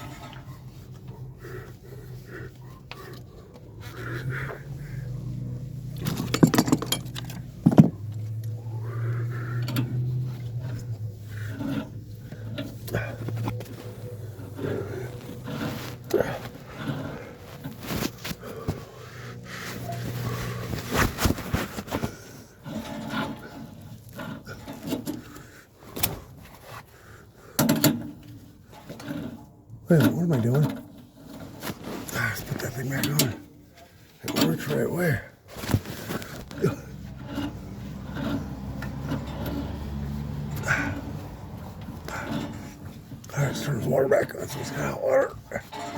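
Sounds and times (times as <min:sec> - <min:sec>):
metal tools clinking: 0:05.9 - 0:08.2, 0:45.4 - 0:45.9.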